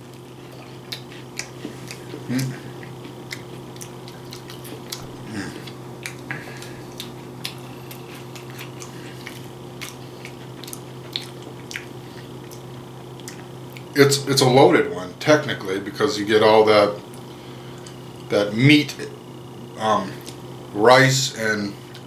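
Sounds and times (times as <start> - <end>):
person chewing crunchy food: 0.0 - 14.0
low murmurs: 4.7 - 6.6.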